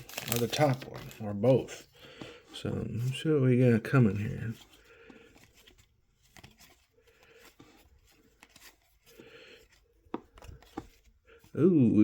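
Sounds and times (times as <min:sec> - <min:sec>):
foil wrapper crinkling and tearing: 0:00.0 - 0:01.6.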